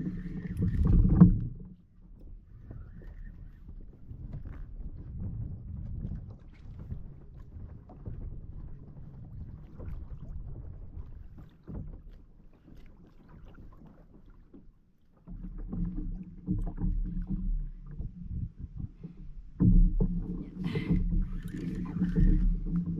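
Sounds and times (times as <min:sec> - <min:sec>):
wind noise: 0:00.0 - 0:01.7, 0:02.5 - 0:11.3
water noise: 0:00.0 - 0:22.9.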